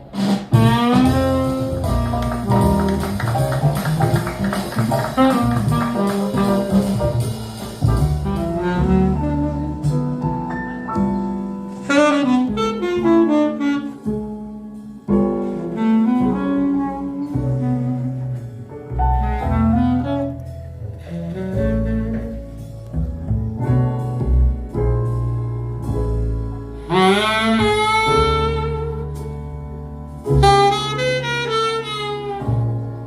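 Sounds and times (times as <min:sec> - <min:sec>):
jazz saxophone melody: 0:00.5 - 0:33.0
walking bass line: 0:00.5 - 0:33.0.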